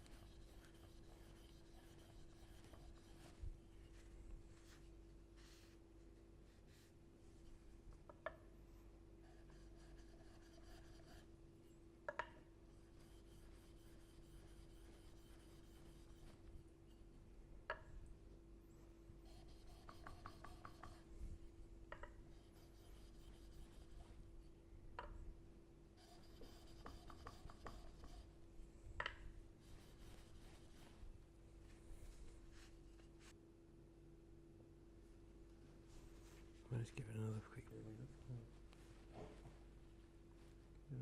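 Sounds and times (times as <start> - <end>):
steady hum: 0.0 - 41.0
blade rubbing on sharpening stone: 19.4 - 21.0.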